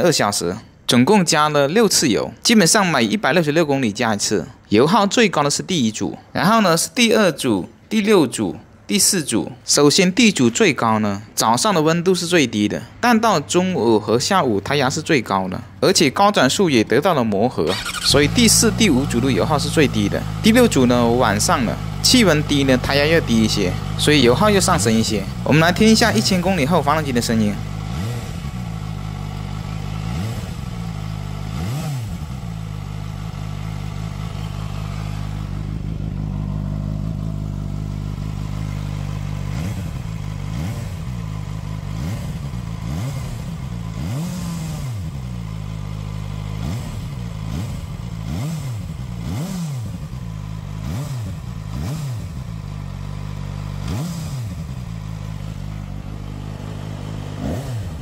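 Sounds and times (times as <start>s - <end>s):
motorcycle engine idling: 13.3s - 58.0s
engine throttle blips: 17.6s - 58.0s.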